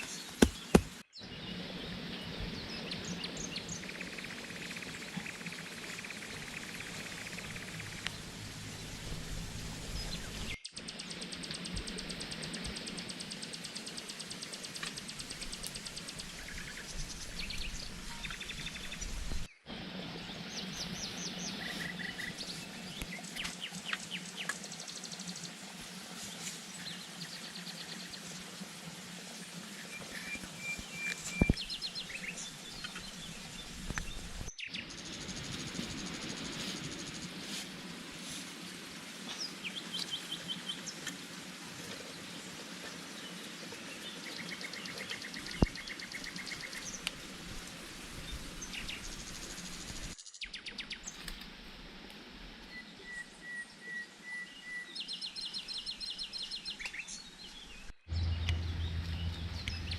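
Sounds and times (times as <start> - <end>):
birds chirping: 0.0 - 19.6, 29.7 - 34.9, 55.9 - 59.9.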